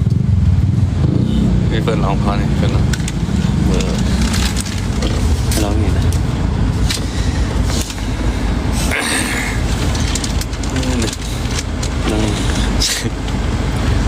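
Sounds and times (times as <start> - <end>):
vehicle rumble from inside: 0.0 - 14.0
person speaking: 1.8 - 6.4, 7.1 - 13.4.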